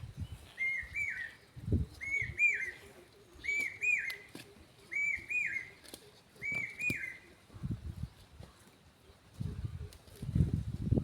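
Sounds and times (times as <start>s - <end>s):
bird whistling call: 0.5s - 1.4s, 2.0s - 2.8s, 3.4s - 4.3s, 4.9s - 5.8s, 6.4s - 7.3s.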